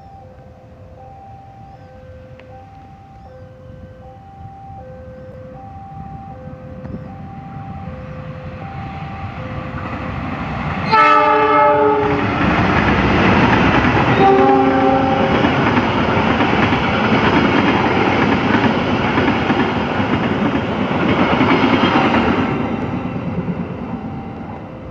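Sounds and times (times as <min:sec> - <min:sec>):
level-crossing alarm beeping: 0:00.0 - 0:24.9
train running noise: 0:00.0 - 0:24.9
locomotive horn blasts: 0:10.8 - 0:12.3, 0:14.1 - 0:15.4
train wheel clatter: 0:12.0 - 0:23.8.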